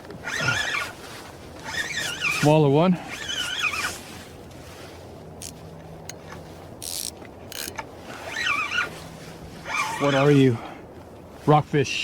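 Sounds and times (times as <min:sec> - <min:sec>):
fishing reel whirring: 0:06.8 - 0:08.8.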